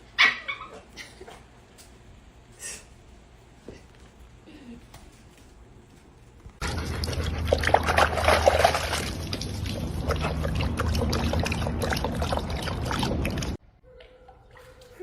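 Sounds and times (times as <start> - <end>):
water splashing and trickling: 6.6 - 15.0.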